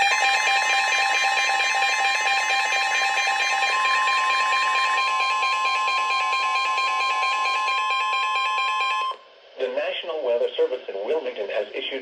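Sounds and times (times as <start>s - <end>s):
shrill single alarm tone: 0.0s - 9.2s.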